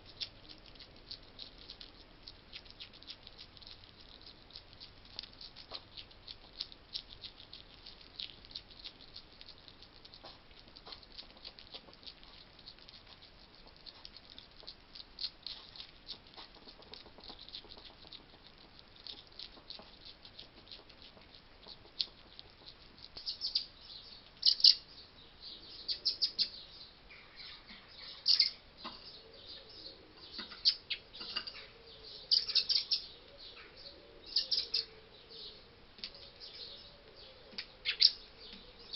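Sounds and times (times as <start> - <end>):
hedgehog chewing food: 0.0 - 38.9
birds chirping: 23.2 - 38.9.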